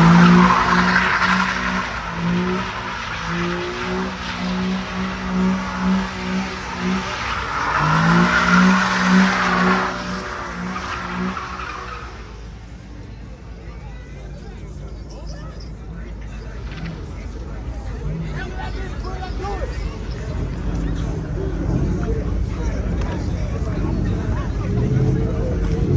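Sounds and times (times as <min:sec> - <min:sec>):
tyres squealing: 0:00.0 - 0:13.2
car engine revving: 0:00.0 - 0:25.9.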